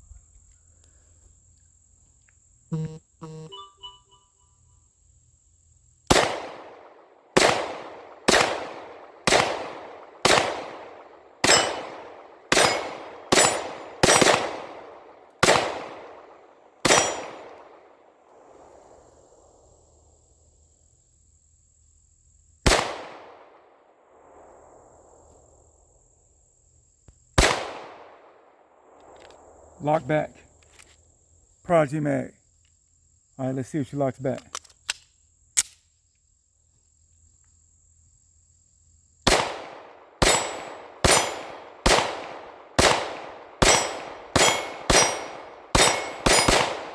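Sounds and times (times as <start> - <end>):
pistol shots echoing: 6.1 - 17.9, 22.7 - 23.5, 27.4 - 29.0, 39.3 - 46.9.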